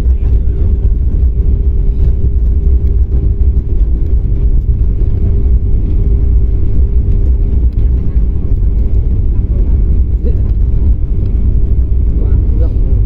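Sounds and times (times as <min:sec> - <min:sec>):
constant engine hum: 0:00.0 - 0:13.0
jet engines rumbling in cabin: 0:00.0 - 0:13.0.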